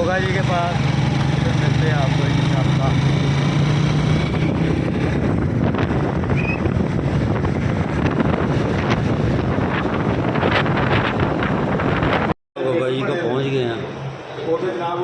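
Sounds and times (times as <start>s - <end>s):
vehicle road noise: 0.0s - 15.0s
wind buffeting microphone: 2.6s - 12.4s.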